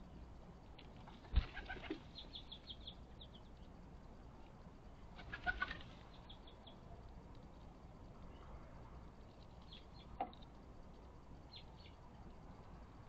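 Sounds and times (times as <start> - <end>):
wings fluttering: 0.8 - 2.2, 5.1 - 6.0.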